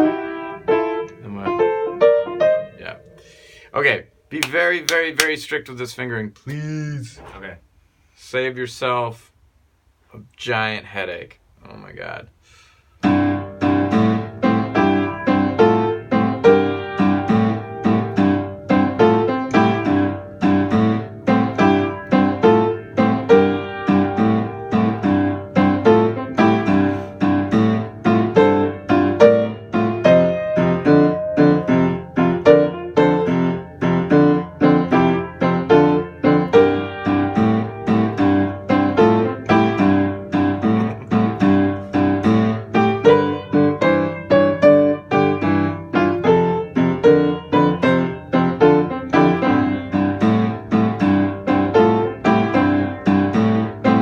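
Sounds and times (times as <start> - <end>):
piano playing rhythmic piece: 0.0 - 3.6, 13.0 - 54.0.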